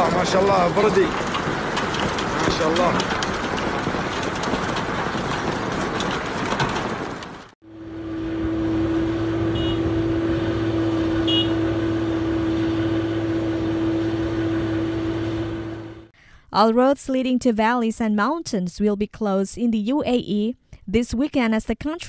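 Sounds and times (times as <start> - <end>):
heavy rain splashing: 0.0 - 7.6
truck motor humming: 0.0 - 16.1.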